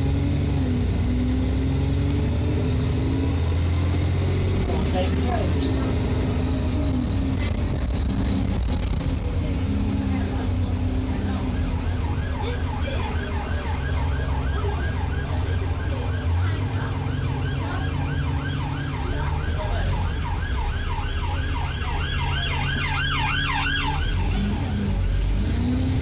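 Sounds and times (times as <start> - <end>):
bus engine droning: 0.0 - 26.0
police siren yelping: 11.2 - 24.8
higher siren yelp: 11.4 - 24.6.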